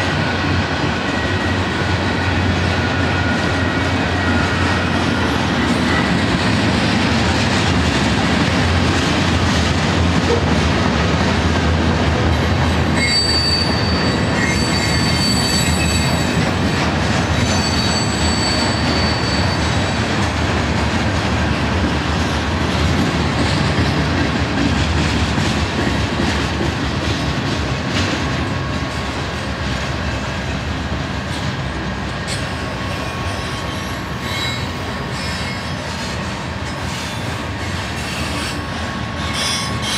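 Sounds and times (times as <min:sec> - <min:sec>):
steel wheels rumbling on rails: 0:00.0 - 0:39.9
high-pitched wheel squeal: 0:13.0 - 0:16.5, 0:17.4 - 0:19.9, 0:33.2 - 0:35.7.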